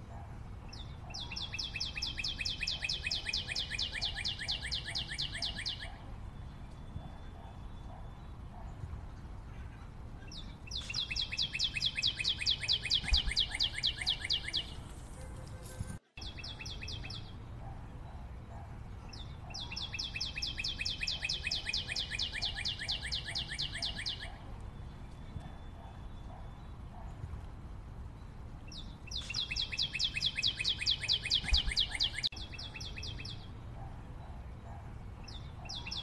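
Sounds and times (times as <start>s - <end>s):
bird singing fast trills: 0.7s - 8.7s, 9.8s - 14.9s, 16.2s - 17.6s, 19.1s - 26.8s, 28.2s - 33.5s, 35.2s - 36.0s.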